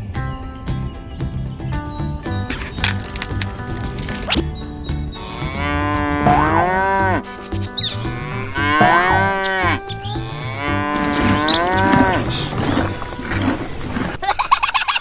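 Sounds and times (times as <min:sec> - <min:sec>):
background music: 0:00.0 - 0:14.2
cow mooing: 0:08.0 - 0:14.2.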